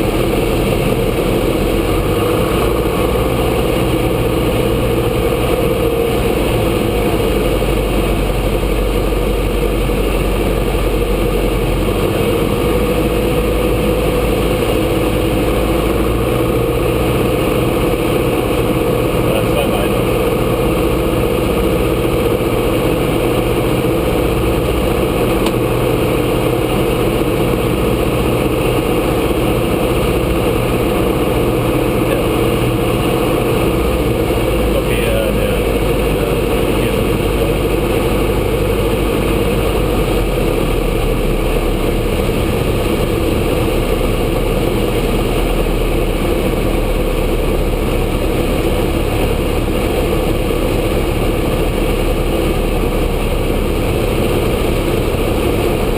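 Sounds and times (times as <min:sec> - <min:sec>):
aircraft engine and propeller drone: 0:00.0 - 0:55.9.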